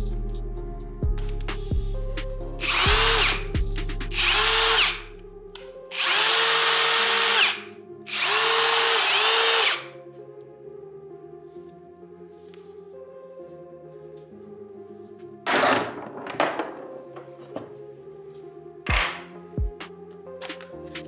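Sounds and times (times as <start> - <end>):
impact driver whirring: 2.6 - 3.4, 4.1 - 5.0, 5.9 - 9.9.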